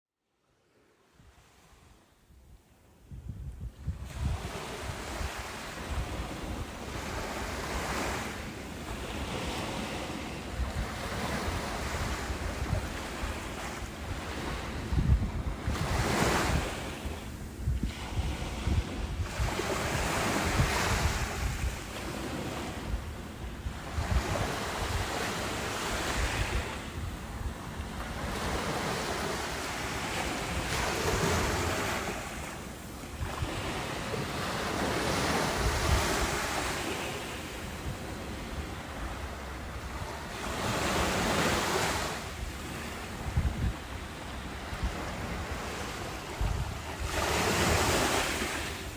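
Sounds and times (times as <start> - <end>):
wind rumble on microphone: 1.2 - 48.9
ocean waves breaking: 4.1 - 48.9.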